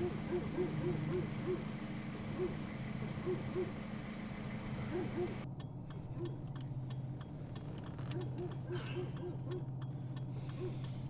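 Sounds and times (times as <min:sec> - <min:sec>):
car engine idling: 0:00.0 - 0:11.0
faint irregular ticking: 0:05.4 - 0:11.0.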